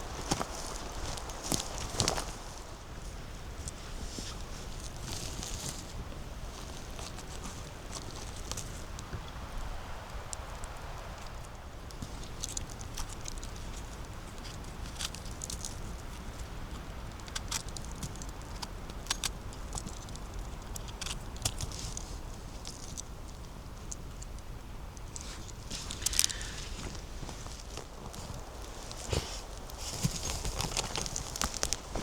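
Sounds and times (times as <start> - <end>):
footsteps on leaves and twigs: 0.0 - 9.2, 25.1 - 32.0.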